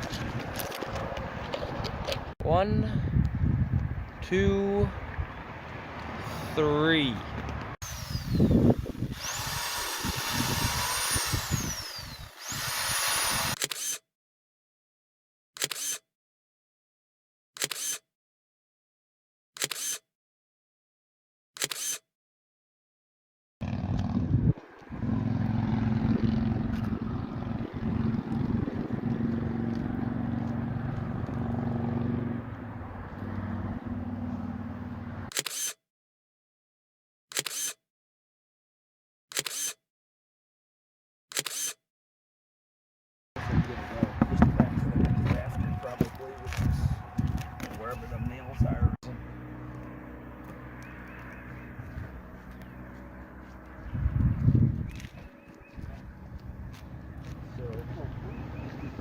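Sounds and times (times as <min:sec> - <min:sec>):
camera shutter clicks: 0:13.5 - 0:14.0, 0:15.6 - 0:16.0, 0:17.6 - 0:18.0, 0:19.6 - 0:20.0, 0:21.6 - 0:22.0, 0:35.3 - 0:35.8, 0:37.3 - 0:37.8, 0:39.3 - 0:39.8, 0:41.3 - 0:41.8.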